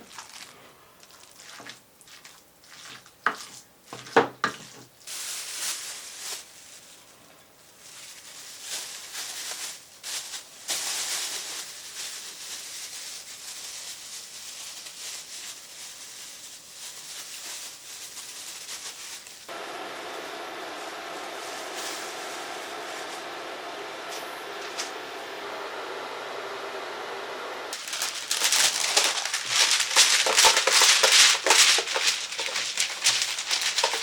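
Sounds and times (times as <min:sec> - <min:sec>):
food sizzling in frying pan: 0:27.7 - 0:34.0.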